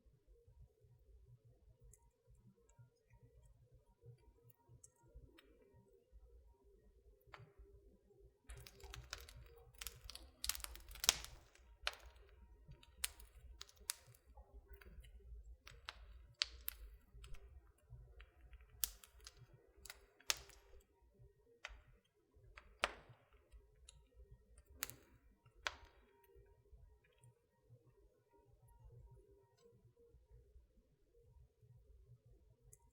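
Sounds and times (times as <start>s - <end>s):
wood fire crackling: 8.5s - 21.0s, 21.6s - 26.4s.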